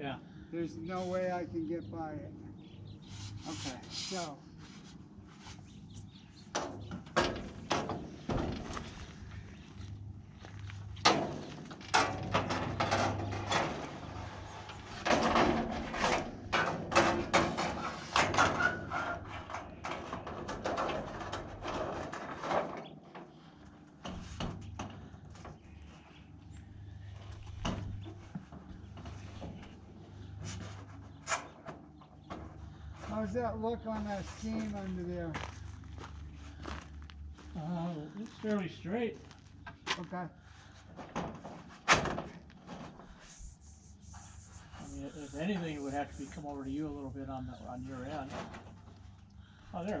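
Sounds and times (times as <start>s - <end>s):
low steady hum: 0.0s - 50.0s
roofing material knocks and clatter: 6.5s - 9.1s, 11.0s - 25.7s, 40.9s - 43.1s.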